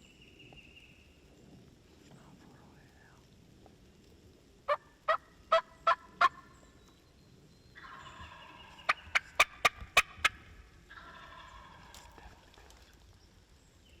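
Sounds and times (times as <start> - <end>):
wild turkey yelping: 4.7 - 6.6, 7.8 - 12.4.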